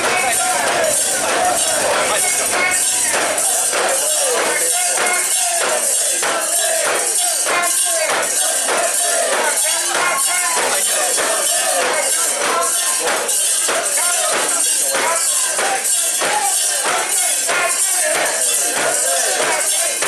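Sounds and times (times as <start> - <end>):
metallic jingling: 0.0 - 12.3
crowd chanting rhythmically: 0.0 - 20.0.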